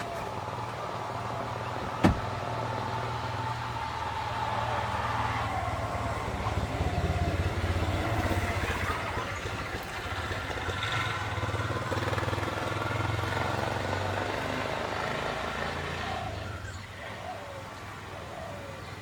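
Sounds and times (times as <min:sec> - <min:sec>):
vehicle engine running: 0:04.4 - 0:15.4.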